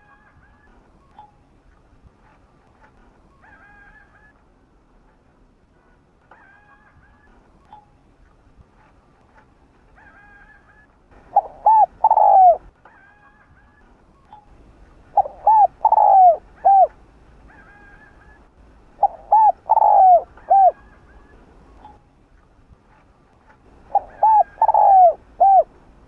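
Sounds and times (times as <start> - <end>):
faint high bird calls: 3.3 - 4.4, 9.9 - 22.1, 23.9 - 25.7
dove cooing: 10.0 - 12.7, 15.1 - 21.5, 23.8 - 25.8.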